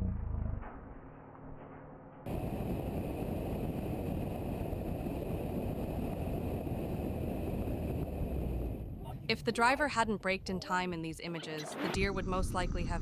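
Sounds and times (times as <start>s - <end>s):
tyre and wind noise: 2.2s - 9.3s.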